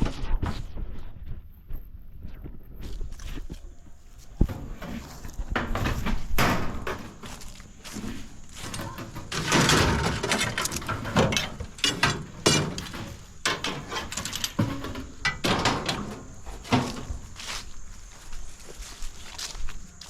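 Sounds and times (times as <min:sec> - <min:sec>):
footsteps: 0:00.0 - 0:20.0
metal scraping: 0:04.4 - 0:17.4
scrap metal clanking: 0:04.4 - 0:17.4.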